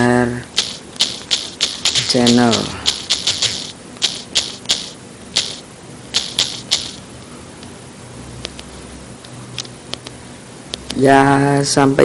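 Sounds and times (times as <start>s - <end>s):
short irregular clicks: 0.5s - 7.0s, 9.6s - 11.0s.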